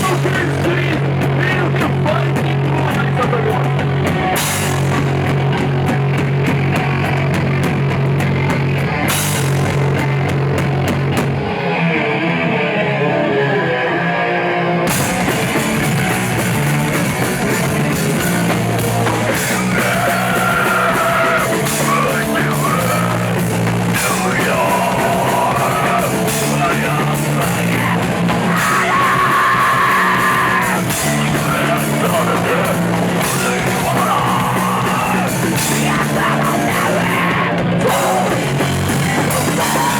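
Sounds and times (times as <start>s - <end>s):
drums and cymbals: 0.0s - 11.4s, 14.9s - 39.9s
distorted guitars: 0.0s - 39.9s
shouted vocals: 17.8s - 39.9s.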